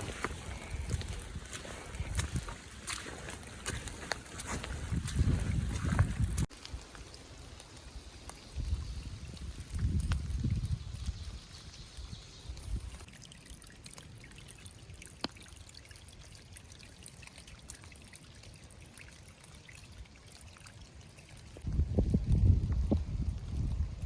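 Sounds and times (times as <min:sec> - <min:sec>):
rain hissing: 0:00.0 - 0:11.6
trickling water: 0:00.0 - 0:24.0.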